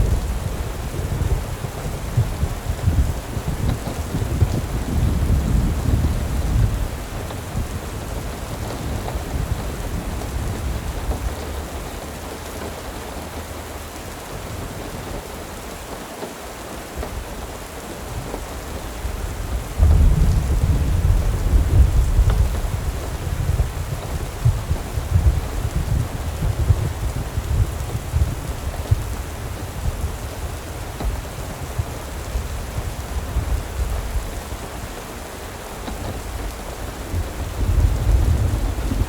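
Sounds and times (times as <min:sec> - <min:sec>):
rain hiss: 0:00.0 - 0:39.0
deep low rumble: 0:19.2 - 0:26.5, 0:37.1 - 0:39.0.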